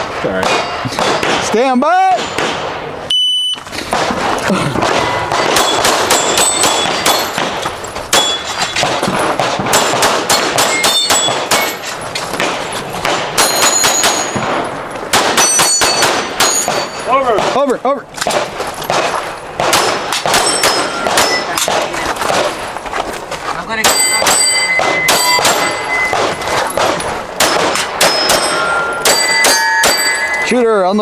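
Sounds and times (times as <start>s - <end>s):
steel targets ringing: 0.4s - 2.4s, 4.8s - 17.4s, 19.8s - 21.8s, 23.8s - 31.0s
rapid pistol fire: 3.9s - 17.6s, 18.3s - 22.6s.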